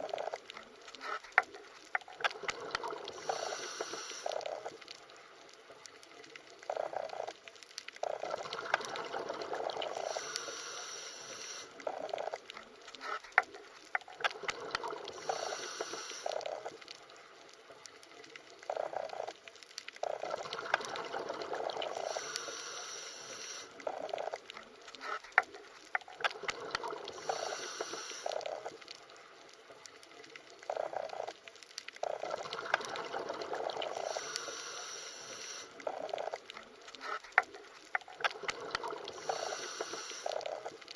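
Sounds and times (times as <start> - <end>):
underwater bubbling and gurgling: 0.0 - 40.9.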